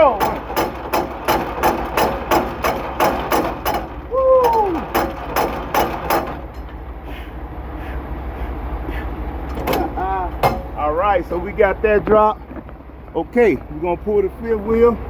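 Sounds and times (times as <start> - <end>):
metallic crank clicks: 0.0 - 6.7.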